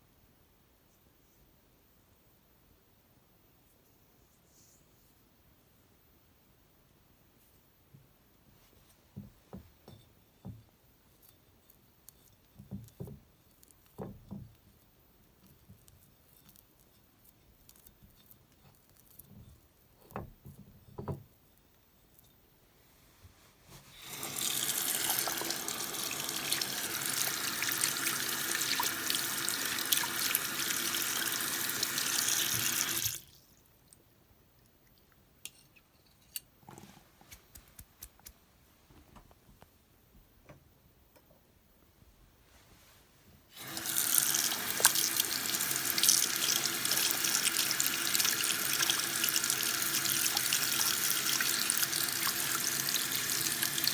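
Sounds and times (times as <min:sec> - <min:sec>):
water running from a tap: 0:24.0 - 0:33.2, 0:43.6 - 0:53.9.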